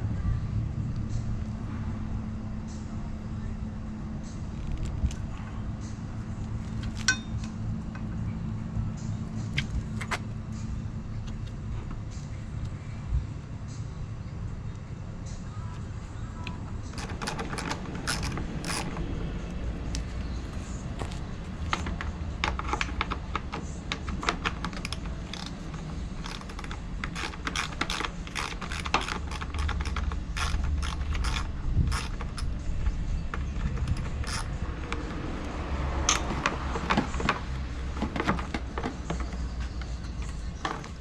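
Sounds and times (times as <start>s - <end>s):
steady low hum: 0.0s - 41.0s
metallic tool clicks and clinks: 7.0s - 7.5s.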